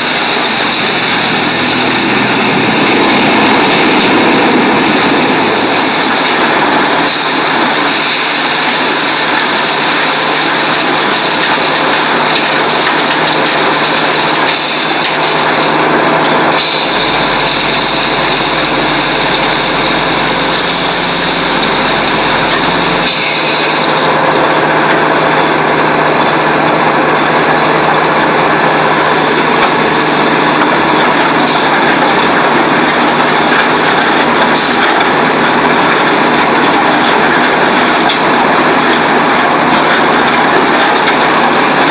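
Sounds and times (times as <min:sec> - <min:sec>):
deep low drone: 0:00.0 - 0:06.2, 0:15.4 - 0:31.0
machinery clatter and hum: 0:00.0 - 0:41.9.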